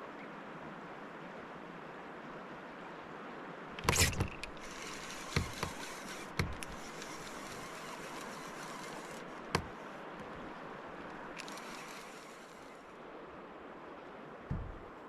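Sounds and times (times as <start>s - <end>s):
river water rushing: 3.6s - 15.0s
sharp knocks: 3.8s - 10.4s, 14.5s - 15.0s.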